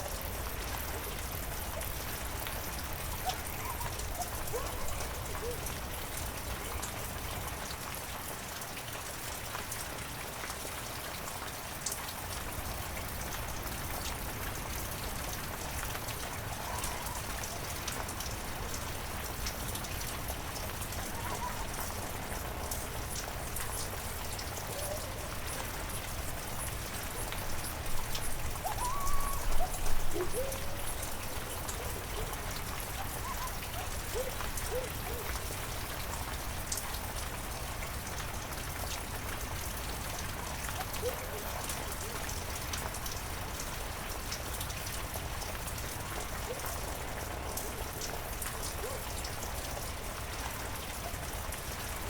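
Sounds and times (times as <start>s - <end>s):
heavy rain: 0.0s - 52.0s
raindrops ticking: 0.0s - 52.0s
faint animal calls: 20.9s - 22.2s, 28.5s - 35.4s.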